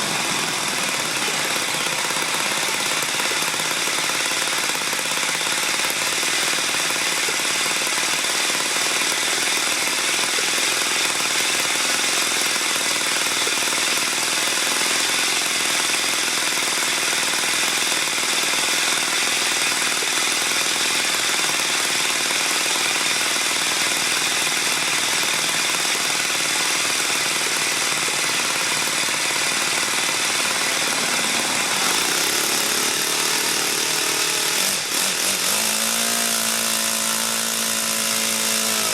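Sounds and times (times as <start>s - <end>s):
model airplane engine running: 0.0s - 38.9s.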